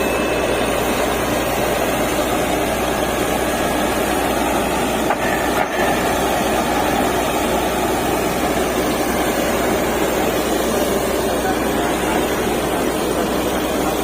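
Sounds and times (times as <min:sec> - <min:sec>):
drilling rig running: 0:00.0 - 0:14.0.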